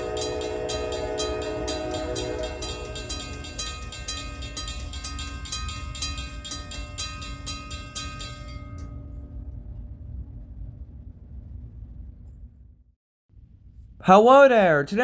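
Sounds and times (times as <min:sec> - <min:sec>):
locomotive bell ringing: 0:00.0 - 0:09.4
train low rumble: 0:00.0 - 0:12.9.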